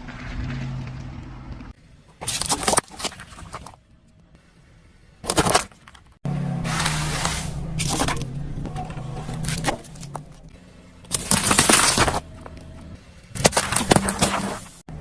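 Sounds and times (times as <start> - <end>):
car engine hum: 0.0 - 2.2, 6.1 - 15.0
objects crunching under tyres: 0.0 - 3.8, 5.2 - 14.8.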